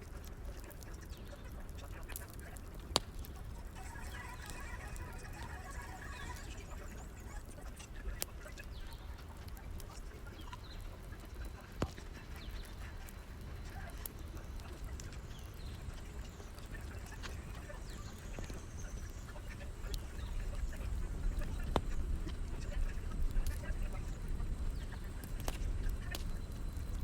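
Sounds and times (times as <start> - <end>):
fire rumbling and hissing: 0.0 - 27.0
sharp crackling pops: 0.0 - 27.0.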